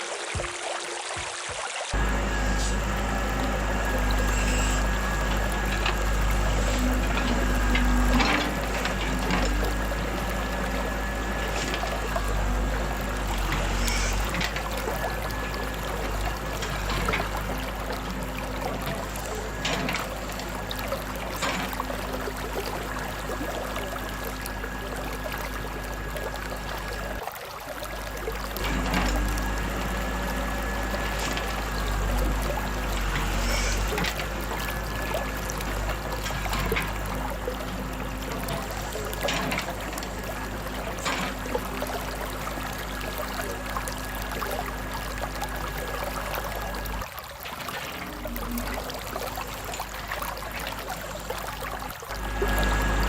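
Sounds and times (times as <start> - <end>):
water running and pouring: 0.0 - 53.0
low hum: 2.0 - 27.2.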